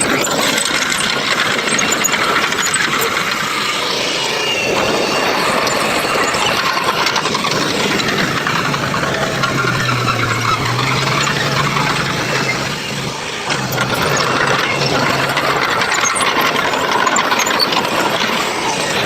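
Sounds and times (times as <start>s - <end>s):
machine engine low hum: 4.0s - 19.0s
clattering rattle: 5.4s - 19.0s.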